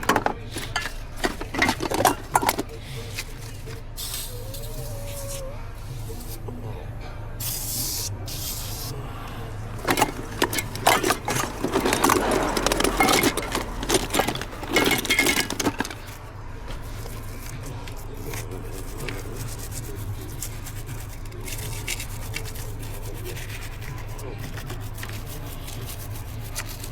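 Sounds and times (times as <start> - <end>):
tools and metal parts clattering: 0.0 - 4.1, 9.7 - 19.2, 23.4 - 26.9.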